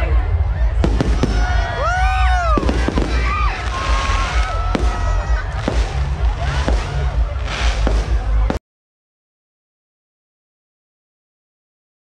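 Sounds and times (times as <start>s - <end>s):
low rumble: 0.0s - 8.6s
fireworks bangs: 0.8s - 8.6s.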